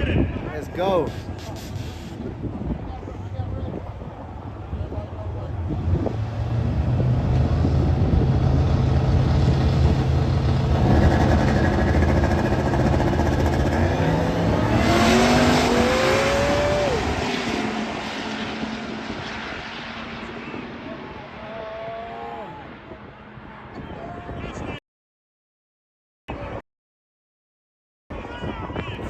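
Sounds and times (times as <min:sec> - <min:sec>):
drag racing engines roaring: 0:00.0 - 0:24.8
rising supercharger whine: 0:05.5 - 0:23.8.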